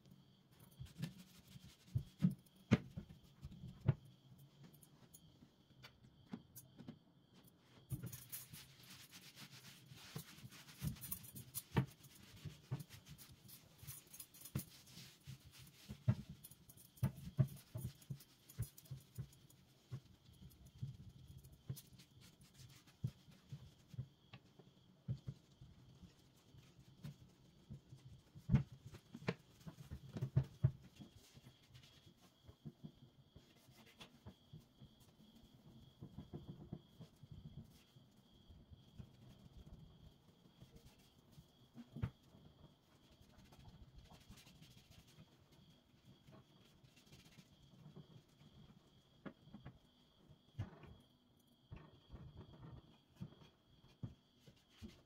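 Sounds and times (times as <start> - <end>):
light knocks and taps: 10.1 - 20.1.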